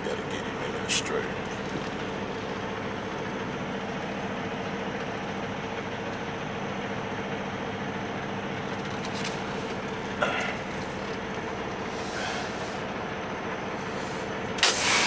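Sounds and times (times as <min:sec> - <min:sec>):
diesel truck engine running: 0:00.0 - 0:15.0
air brake hiss: 0:11.7 - 0:13.0, 0:13.7 - 0:15.0.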